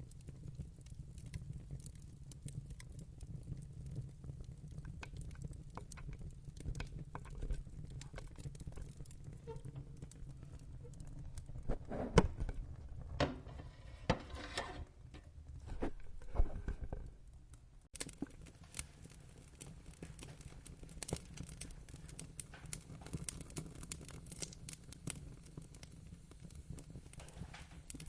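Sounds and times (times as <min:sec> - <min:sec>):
wood fire crackling: 0:00.0 - 0:28.0
loud fire pops: 0:18.0 - 0:28.0.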